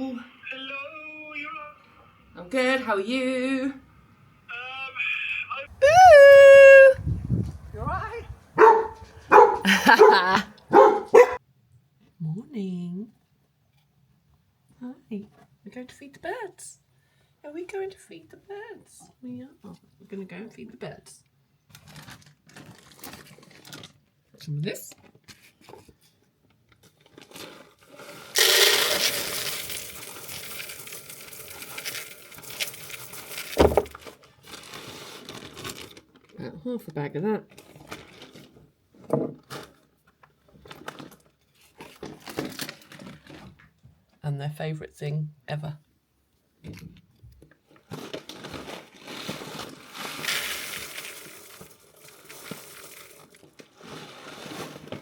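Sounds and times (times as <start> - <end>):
bird feed pouring into container: 28.1 - 34.0, 49.1 - 54.9.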